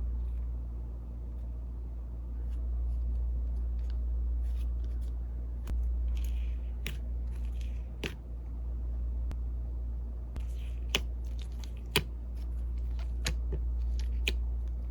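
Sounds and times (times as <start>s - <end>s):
steady low hum: 0.0s - 14.9s
slime crackling: 10.4s - 14.9s.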